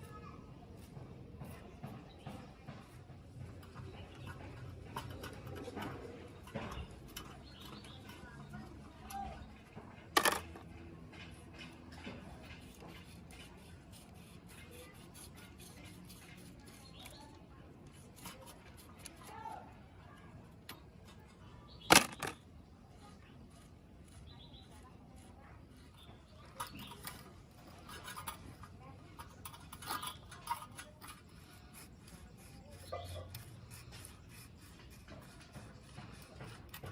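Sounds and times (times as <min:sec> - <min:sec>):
clicks and scrapes of bicycle parts: 0:00.0 - 0:36.9
metal tools clinking and scraping: 0:10.1 - 0:10.6, 0:20.7 - 0:22.4, 0:26.0 - 0:34.1.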